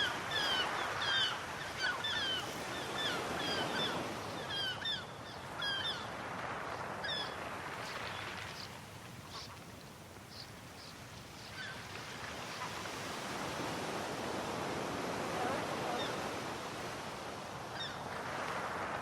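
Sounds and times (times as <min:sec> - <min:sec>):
bird calls: 0:00.0 - 0:13.3, 0:17.7 - 0:18.3
sea waves washing on shore: 0:00.0 - 0:19.0.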